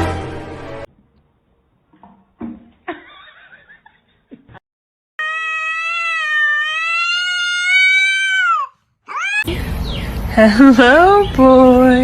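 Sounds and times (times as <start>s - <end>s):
cat meowing long: 5.2s - 9.5s.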